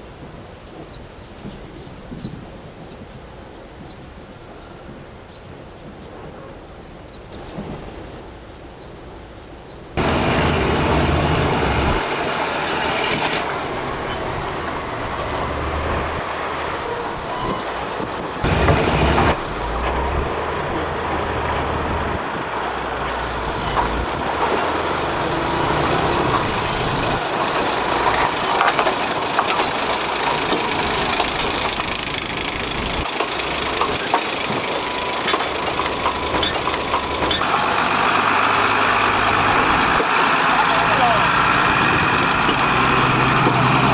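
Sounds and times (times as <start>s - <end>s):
train rumbling and rattling: 5.8s - 43.9s
low engine drone: 10.0s - 43.9s.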